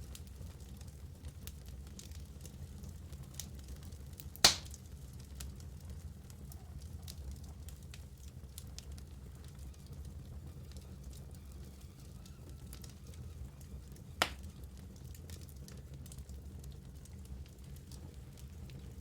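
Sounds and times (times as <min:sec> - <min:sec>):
low rumble of flames: 0:00.0 - 0:19.0
wood logs crackling in fireplace: 0:00.0 - 0:19.0
loud sharp pop of fire: 0:04.4 - 0:04.8, 0:14.2 - 0:14.5.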